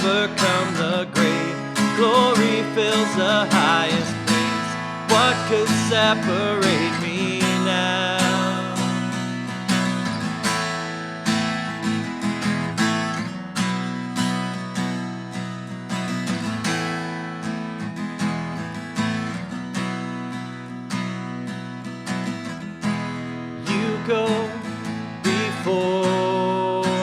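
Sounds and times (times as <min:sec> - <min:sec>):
person singing: 0:00.0 - 0:09.2, 0:23.6 - 0:27.0
acoustic guitar strumming chords: 0:00.0 - 0:27.0.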